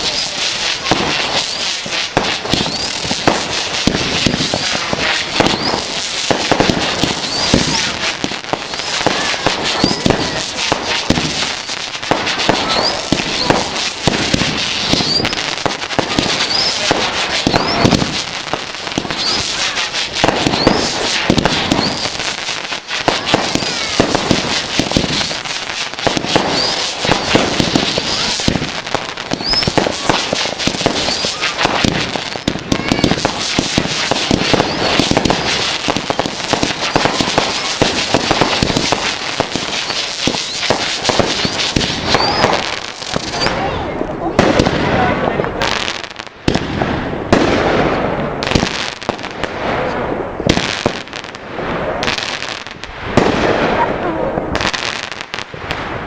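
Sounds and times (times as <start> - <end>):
rising firework whistles: 0.0 - 43.9
fireworks bangs and crackling: 0.0 - 56.0.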